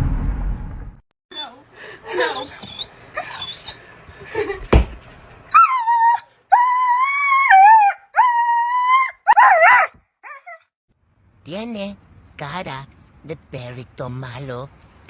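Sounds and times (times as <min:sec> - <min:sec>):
dog howling: 0:01.4 - 0:03.8, 0:05.6 - 0:10.6.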